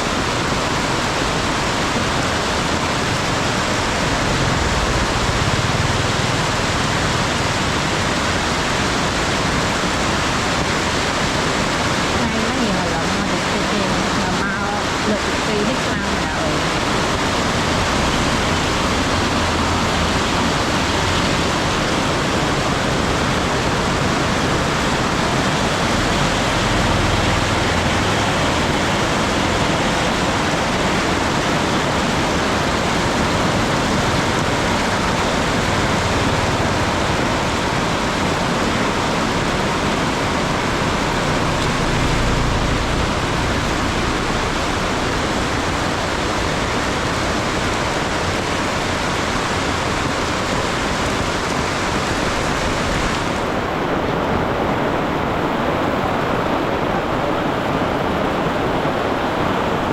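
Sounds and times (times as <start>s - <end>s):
heavy rain pouring: 0.0s - 59.9s
low rumble: 2.9s - 8.1s.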